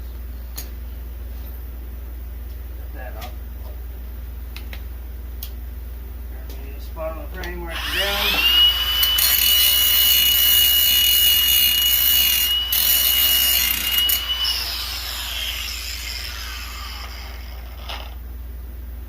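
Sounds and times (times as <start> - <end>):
angle grinder grinding steel: 7.7 - 18.2
grinder disc winding down: 7.7 - 18.2.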